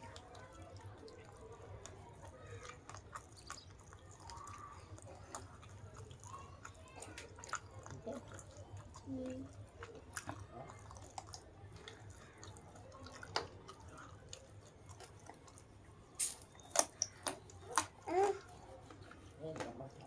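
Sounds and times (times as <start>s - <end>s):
person chewing food: 0.0s - 20.0s.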